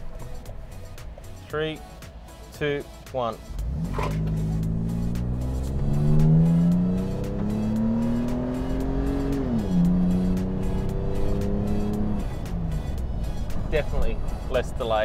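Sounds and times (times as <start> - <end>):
car engine accelerating hard: 3.5 - 13.4.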